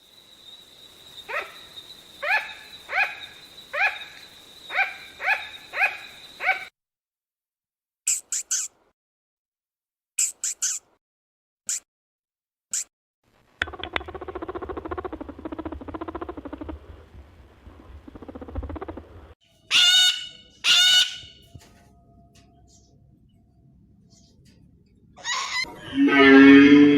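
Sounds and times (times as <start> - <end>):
rapid pulsing animal sound: 13.6 - 19.4
loud animal calls: 25.2 - 26.9.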